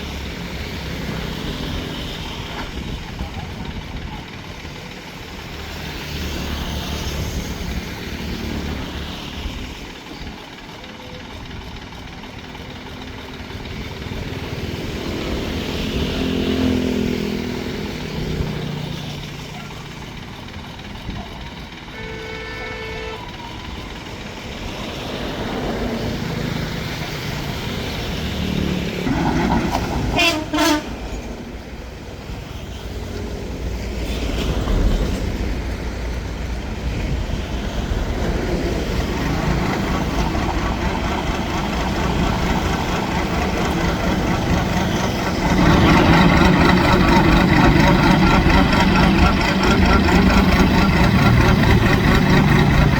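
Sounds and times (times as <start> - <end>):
boat engine running: 36.3 - 52.9.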